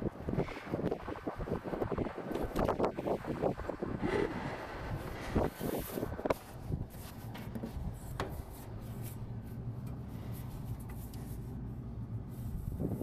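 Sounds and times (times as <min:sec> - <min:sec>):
low machine hum: 0:00.0 - 0:13.0
handling clicks and rubbing: 0:05.7 - 0:11.6.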